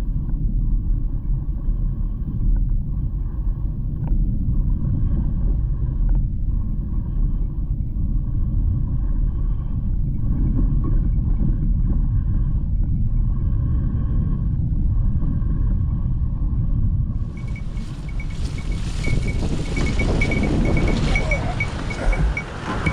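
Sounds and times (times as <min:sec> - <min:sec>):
bike rumbling over rough ground: 0:17.2 - 0:22.9.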